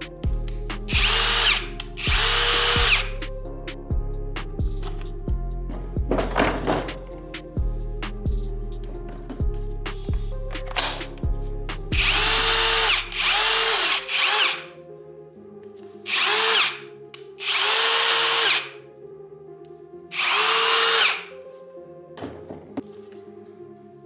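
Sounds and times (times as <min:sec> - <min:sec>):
background music with bass beat: 0:00.0 - 0:13.4
impact driver whirring and rattling: 0:01.0 - 0:03.1, 0:12.0 - 0:14.6, 0:20.1 - 0:21.2.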